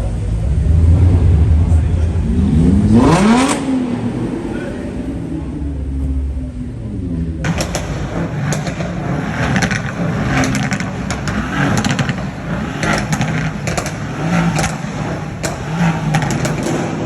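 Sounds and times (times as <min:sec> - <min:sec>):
car engines revving: 0:00.0 - 0:17.0
exhaust crackles and pops: 0:07.4 - 0:17.0.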